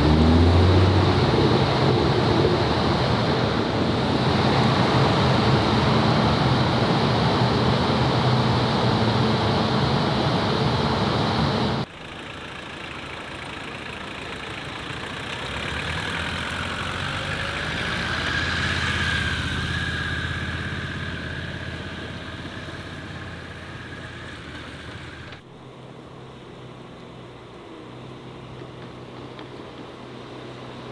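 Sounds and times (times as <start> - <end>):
car driving past: 0.0 - 11.9, 14.3 - 25.3
car engine running loudly: 0.0 - 30.9
faint engine whine: 0.0 - 30.9.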